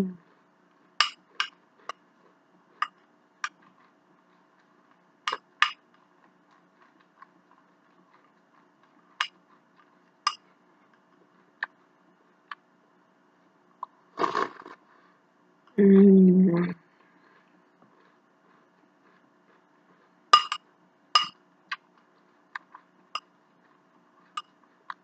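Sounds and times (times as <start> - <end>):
utensils clinking against a dish: 20.4 - 20.6, 21.2 - 21.4.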